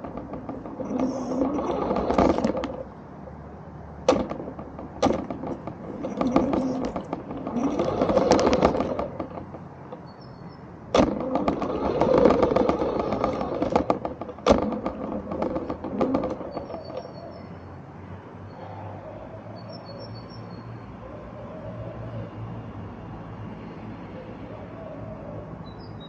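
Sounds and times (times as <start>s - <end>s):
sharp knocks: 0.0s - 2.9s, 4.0s - 10.1s, 10.9s - 17.1s
toy car rattling over rough ground: 0.0s - 3.0s, 4.0s - 17.5s.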